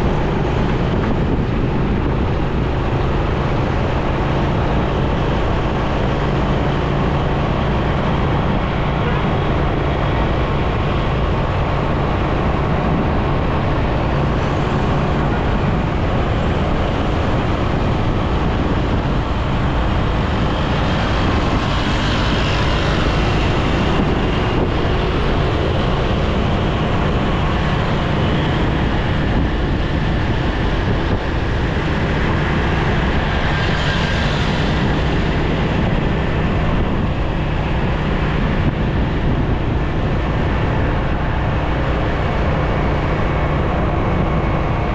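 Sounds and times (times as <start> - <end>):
motorcycle engine hum: 0.0 - 44.9
road noise: 0.0 - 44.9
vehicles passing: 0.0 - 44.9
wind rush on microphone: 0.0 - 44.9.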